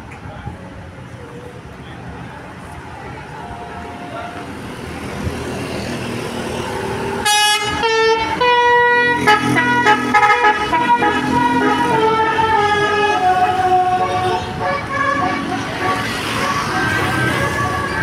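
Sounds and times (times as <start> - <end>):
bus engine: 0.0 - 18.0
multi-tone musical bus horn: 7.2 - 18.0.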